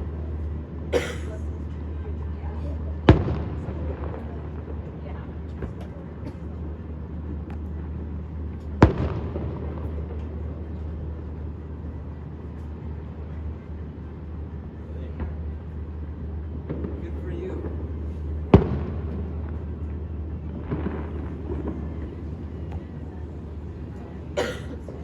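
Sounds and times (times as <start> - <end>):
fireworks booming: 3.0 - 11.1, 16.6 - 25.0.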